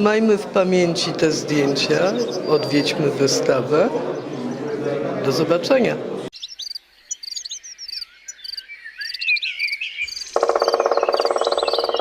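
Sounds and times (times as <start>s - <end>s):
birds chirping and whistling: 1.5s - 3.2s, 6.4s - 12.0s
frog rattling croak: 10.3s - 12.0s
high ticking: 10.4s - 12.0s.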